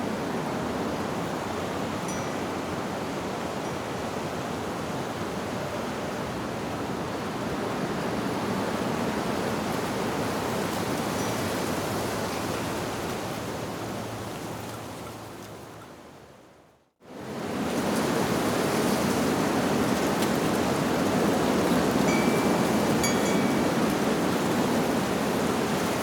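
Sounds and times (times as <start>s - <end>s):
wind through tree leaves: 0.0s - 26.0s
wind chime tone: 2.1s - 2.4s, 22.1s - 24.1s.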